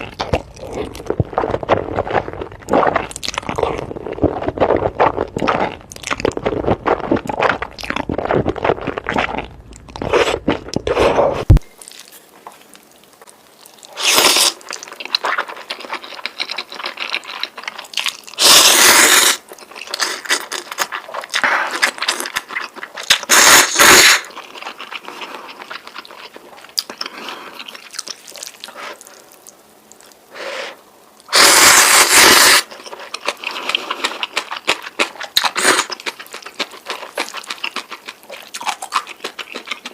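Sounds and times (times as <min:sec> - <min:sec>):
wet chewing and mouth smacks: 0:24.4 - 0:30.2, 0:32.6 - 0:39.9
noodle slurping: 0:31.3 - 0:32.7.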